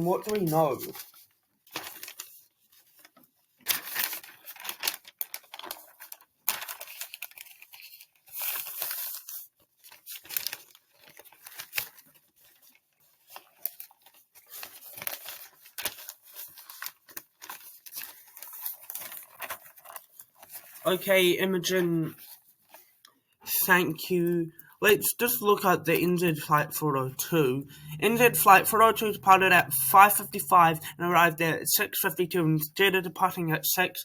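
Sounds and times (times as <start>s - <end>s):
crackling and rustling: 0.0s - 20.9s.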